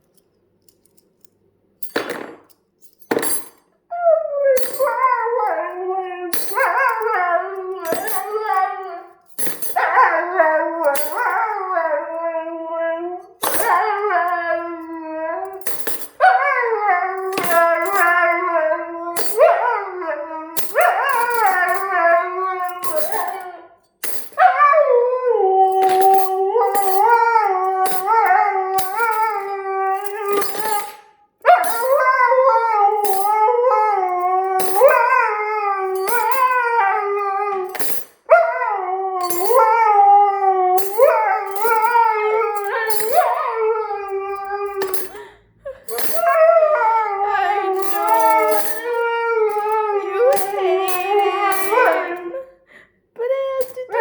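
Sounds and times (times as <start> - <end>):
dog howling: 3.9 - 9.2, 9.8 - 23.8, 24.4 - 45.3, 45.9 - 52.5
cutlery clinking: 7.8 - 8.7, 25.7 - 32.0.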